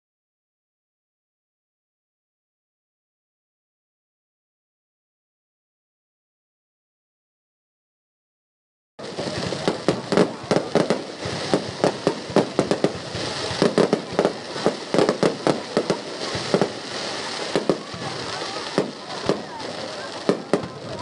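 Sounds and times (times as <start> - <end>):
fireworks bangs: 9.0 - 21.0.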